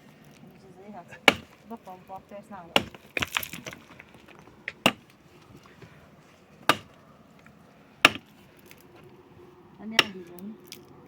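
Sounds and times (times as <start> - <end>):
hand tool chopping blows: 1.2 - 1.6, 6.6 - 7.0, 8.0 - 8.8.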